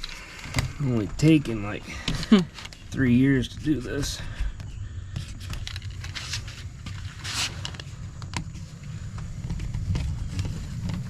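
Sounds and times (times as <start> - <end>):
light clicks and scrapes from hands: 0.0 - 11.0
steady low rumble: 0.0 - 11.0.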